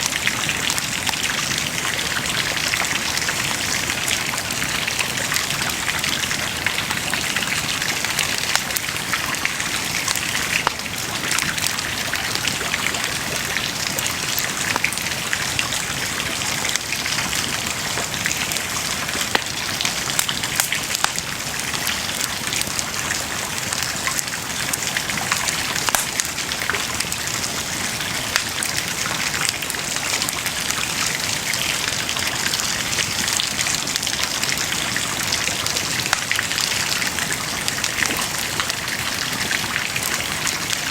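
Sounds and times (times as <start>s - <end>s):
bonfire flames hissing: 0.1s - 40.6s
fire popping and snapping: 7.0s - 30.8s, 32.2s - 40.6s.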